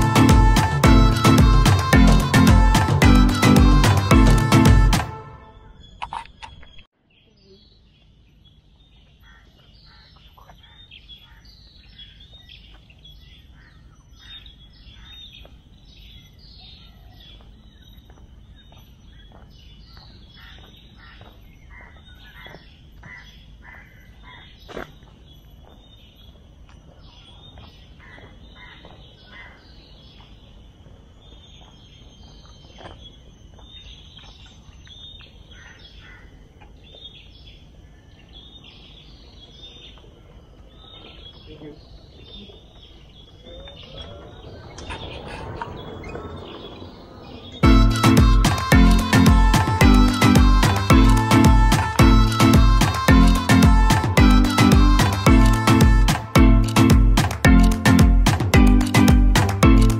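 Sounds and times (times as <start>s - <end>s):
many birds chirping: 6.6s - 56.4s
low rumble: 43.4s - 52.8s
sharp click: 56.1s - 58.5s.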